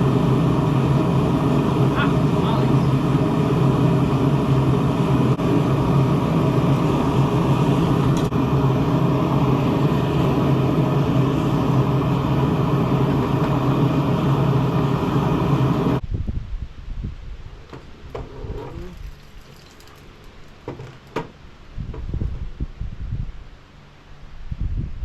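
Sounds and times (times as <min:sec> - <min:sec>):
forge running with low hum: 0:00.0 - 0:16.0.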